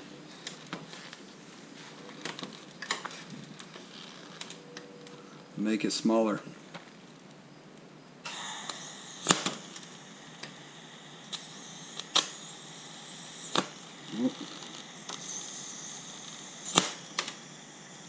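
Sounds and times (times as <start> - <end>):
welding clicks and snaps: 2.1 - 5.2, 6.7 - 18.0
welder hissing: 8.2 - 18.0.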